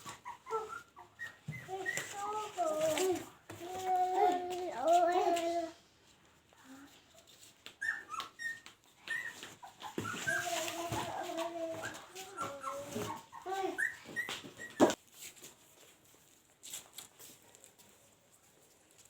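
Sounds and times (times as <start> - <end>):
puppies whining and squealing: 0.0 - 4.4, 7.6 - 15.0.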